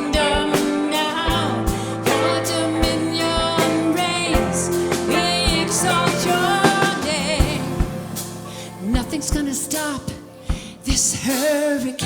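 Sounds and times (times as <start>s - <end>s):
live band playing rock: 0.0s - 12.0s
person singing with vibrato: 0.0s - 12.0s.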